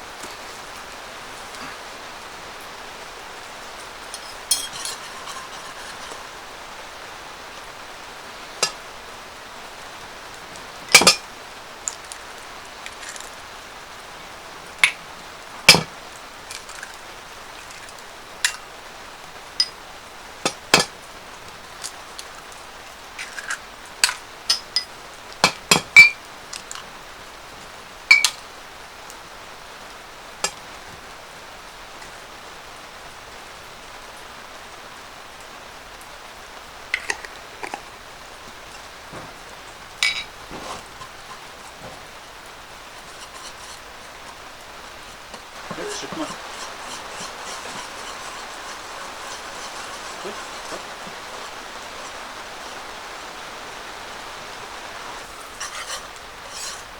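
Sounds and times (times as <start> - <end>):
rain pattering on canvas roof: 0.0 - 56.9
utensils clinking against dishes: 3.8 - 6.3, 10.9 - 11.3, 23.2 - 26.2, 28.1 - 28.4, 40.0 - 41.1, 45.2 - 52.2.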